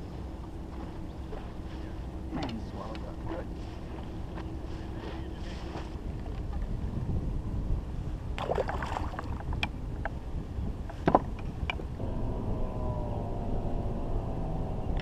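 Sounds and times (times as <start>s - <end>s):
faint steady hum: 0.0s - 15.0s
wind rumbling on microphone: 0.0s - 15.0s
sharp knocks and clicks: 10.9s - 11.8s.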